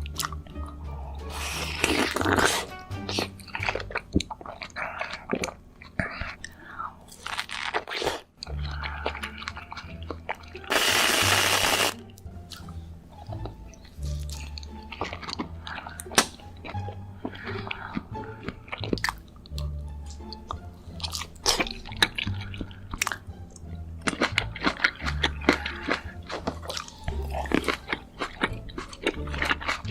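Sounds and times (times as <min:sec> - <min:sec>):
crunchy bites and chewing: 0:07.1 - 0:12.7, 0:13.3 - 0:29.9
background music with bass line: 0:08.5 - 0:29.9
loud even hiss: 0:10.7 - 0:12.0.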